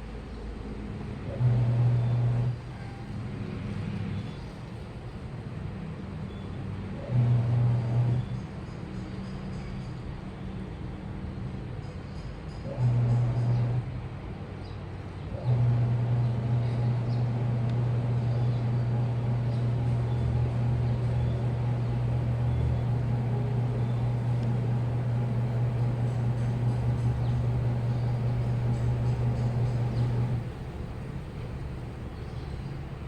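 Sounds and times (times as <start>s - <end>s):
washing machine motor humming: 1.2s - 2.7s, 7.0s - 8.2s, 15.4s - 33.0s.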